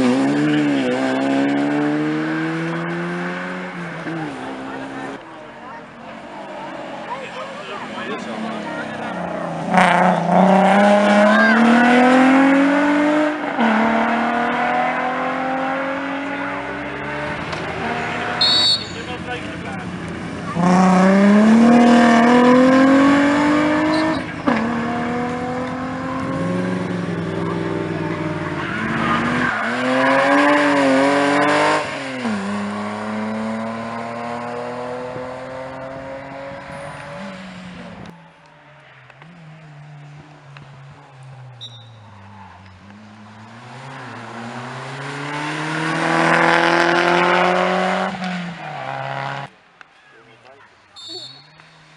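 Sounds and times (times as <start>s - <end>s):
rally car engine accelerating: 0.0s - 49.5s
brief high squeal: 51.0s - 51.6s.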